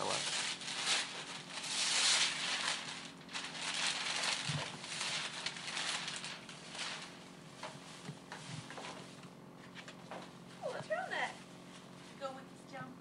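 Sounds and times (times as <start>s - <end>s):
wrapping paper ripping and crumpling: 0.0s - 7.8s.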